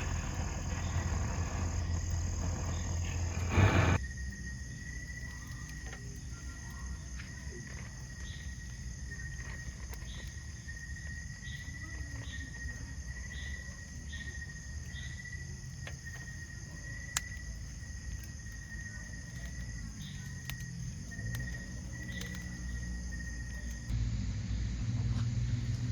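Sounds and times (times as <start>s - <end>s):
insect chirps: 0.0s - 24.0s
insects trilling: 0.0s - 24.0s
insect buzz: 0.0s - 25.9s.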